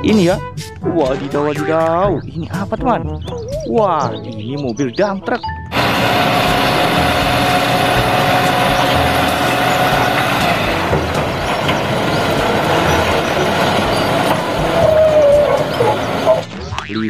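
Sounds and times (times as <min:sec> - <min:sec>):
hydraulic hoist whine: 0:05.7 - 0:16.5
truck engine running: 0:05.7 - 0:16.6.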